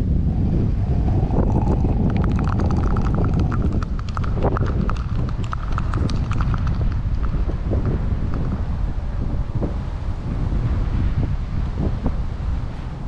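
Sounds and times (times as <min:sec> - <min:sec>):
wind buffeting microphone: 0:00.0 - 0:13.0
sharp clicks: 0:02.0 - 0:08.6.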